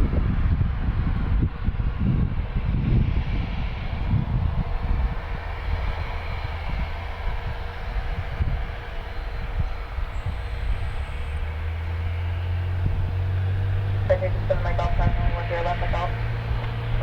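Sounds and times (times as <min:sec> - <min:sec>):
propeller aircraft engine drone: 0:00.0 - 0:17.0
irregular low rumble: 0:03.6 - 0:17.0.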